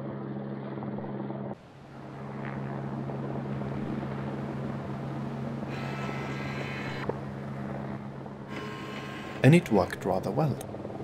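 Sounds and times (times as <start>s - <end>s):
helicopter engine and rotor drone: 0.0s - 11.0s.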